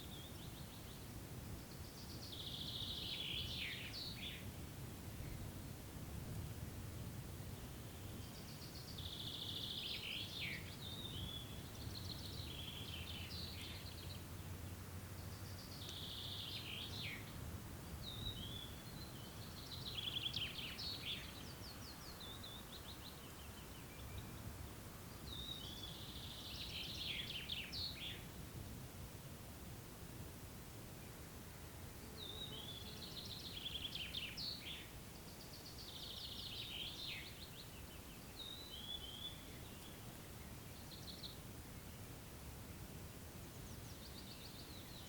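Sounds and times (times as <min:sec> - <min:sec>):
songbird singing trills: 0:01.6 - 0:04.5, 0:07.6 - 0:14.3, 0:15.2 - 0:17.4, 0:18.0 - 0:28.3, 0:32.1 - 0:42.1, 0:43.5 - 0:45.0.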